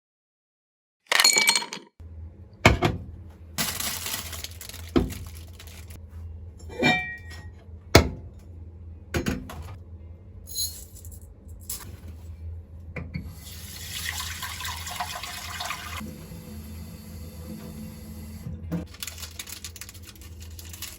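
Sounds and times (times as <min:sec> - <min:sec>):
glass and utensils clinking: 0:06.7 - 0:07.5
tap water running: 0:13.2 - 0:19.0.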